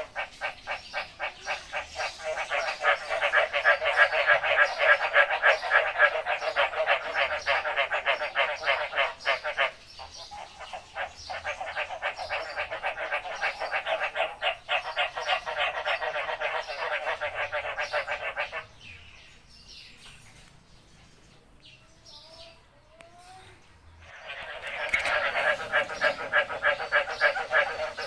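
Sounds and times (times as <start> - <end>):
frog calling in rasping pulses: 24.0 - 28.0.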